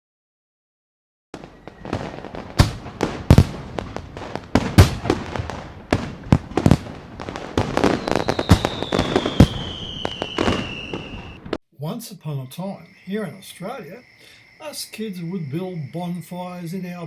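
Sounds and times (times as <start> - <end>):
fireworks bangs and crackling: 1.4 - 11.6
falling high whistle: 7.9 - 11.5.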